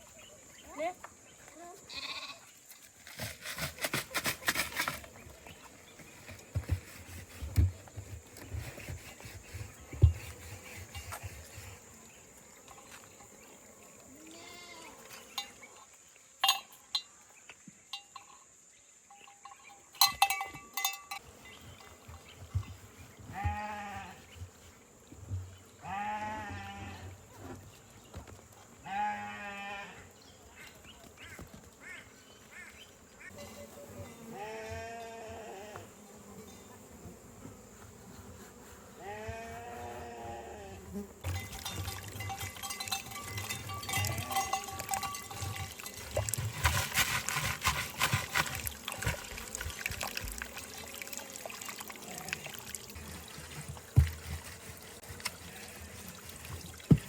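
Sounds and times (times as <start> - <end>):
goat bleating: 1.9 - 2.4, 14.2 - 15.0, 23.4 - 24.2.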